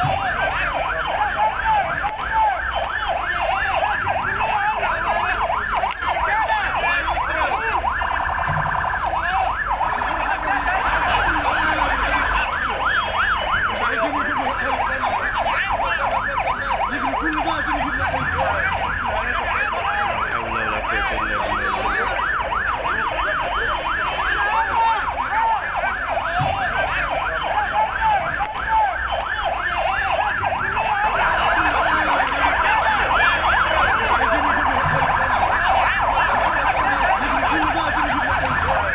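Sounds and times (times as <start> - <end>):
emergency vehicle sirens wailing: 0.0 - 38.9.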